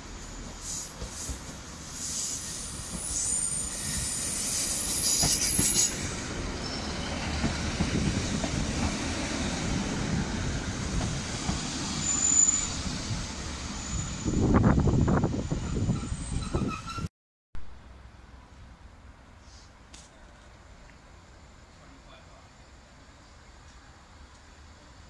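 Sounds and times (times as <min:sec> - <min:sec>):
diesel train rumbling: 0:00.1 - 0:17.1
metallic wheel squeal: 0:13.8 - 0:17.1.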